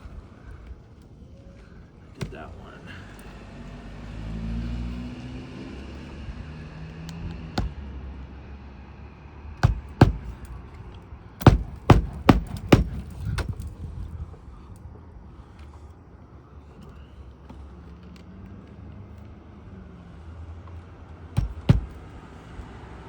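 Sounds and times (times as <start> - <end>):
hatchet driving nails into shingles: 7.2 - 8.0, 9.6 - 13.7, 21.4 - 22.3.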